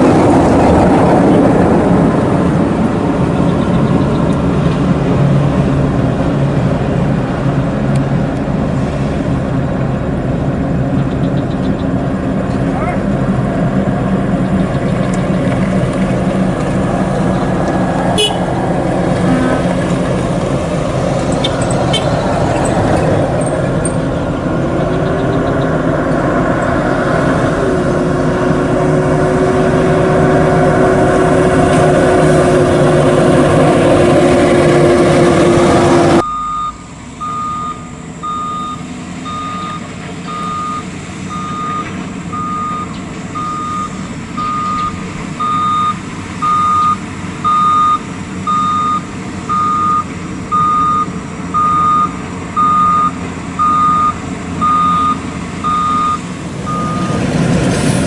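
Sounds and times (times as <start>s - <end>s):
engine whine: 0.0s - 58.0s
truck diesel engine running: 0.0s - 58.0s
truck reversing alarm beeping: 3.0s - 4.5s, 36.1s - 57.3s.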